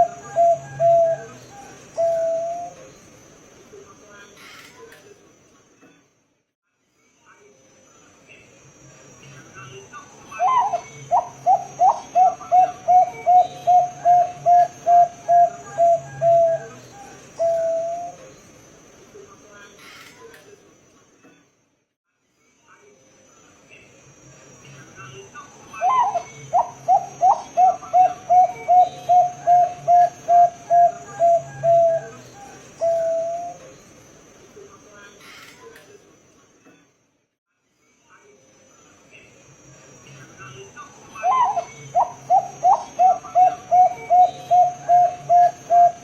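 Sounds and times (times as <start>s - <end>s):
dove cooing: 0.0s - 2.9s, 10.4s - 18.3s, 25.8s - 33.7s, 41.2s - 46.0s.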